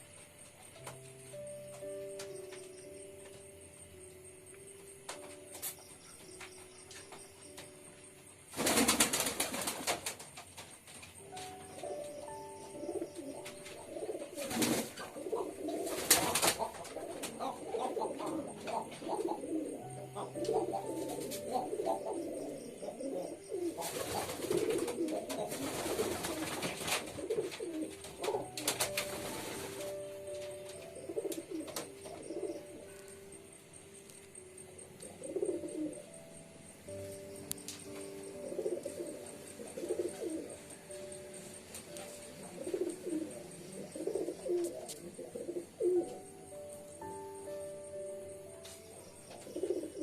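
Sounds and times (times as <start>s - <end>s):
pigeons cooing: 12.7s - 33.2s, 35.0s - 36.1s, 37.8s - 41.1s, 41.9s - 46.2s, 49.3s - 50.0s.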